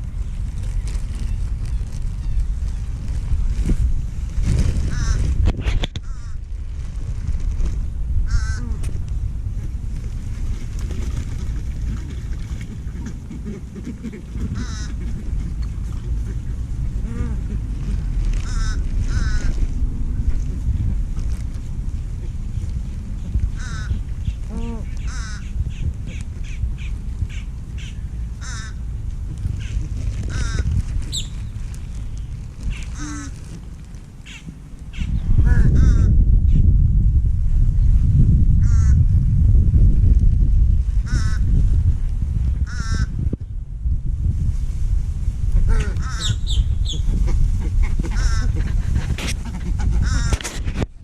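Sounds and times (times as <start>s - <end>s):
steady low rumble: 0.0s - 51.0s
ducks quacking: 4.8s - 5.3s, 8.3s - 8.8s, 11.9s - 19.6s, 23.5s - 28.8s, 29.6s - 31.2s, 32.7s - 33.5s, 42.7s - 43.1s, 45.6s - 50.8s.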